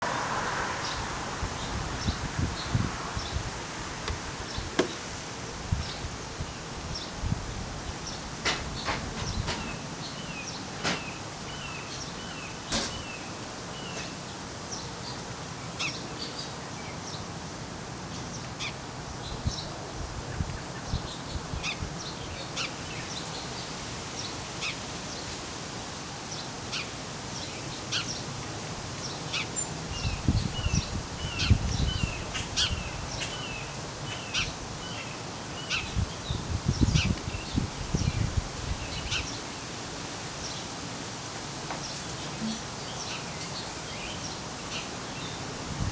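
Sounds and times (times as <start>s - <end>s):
steady background hiss: 0.1s - 45.9s
small birds chirping: 29.0s - 39.6s.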